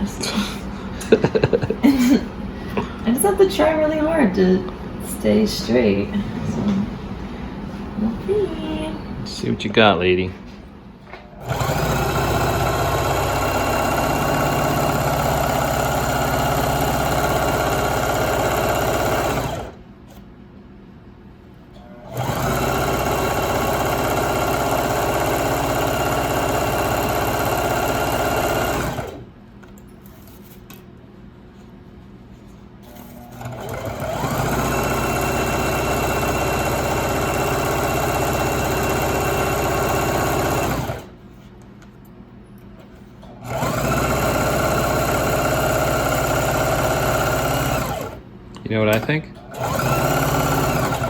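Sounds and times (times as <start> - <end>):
electric sewing machine stitching: 11.3 - 19.8, 21.8 - 29.2, 32.8 - 41.1, 43.3 - 48.2, 48.9 - 51.0.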